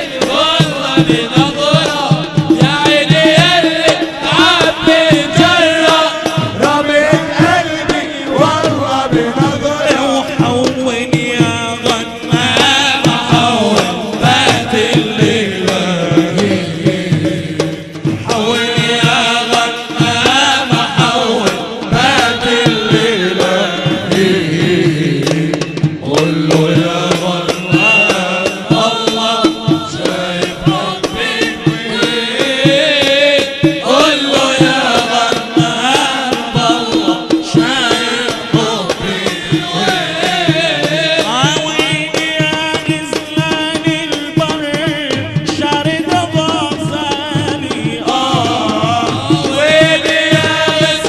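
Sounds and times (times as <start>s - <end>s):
hand drum percussion: 0.0s - 51.0s
person chanting a melody: 18.3s - 44.9s.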